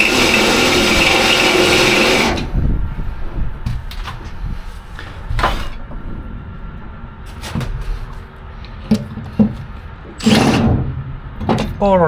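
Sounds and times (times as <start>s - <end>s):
electric drill grinding through steel: 0.0s - 2.6s, 10.2s - 10.8s.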